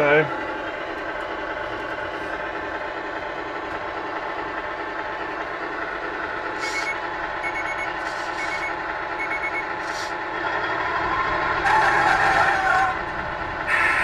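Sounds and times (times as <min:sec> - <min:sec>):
simulated truck engine idling: 0:00.0 - 0:14.0
reversing beeper: 0:06.6 - 0:10.0.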